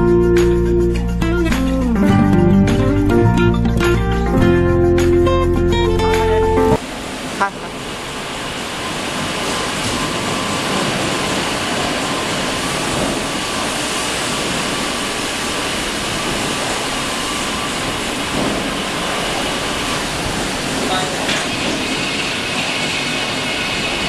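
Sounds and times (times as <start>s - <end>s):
rail car rolling with motor whine: 6.8s - 24.0s.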